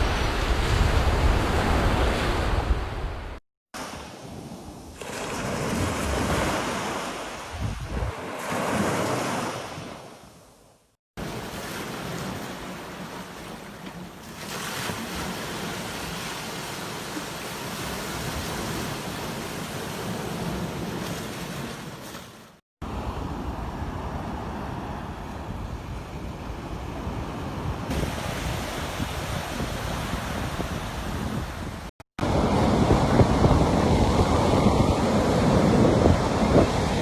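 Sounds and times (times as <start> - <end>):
wind rumbling on microphone: 0.0 - 3.4, 7.4 - 8.2, 22.9 - 37.0
ocean surf breaking: 0.0 - 10.1, 11.2 - 37.0.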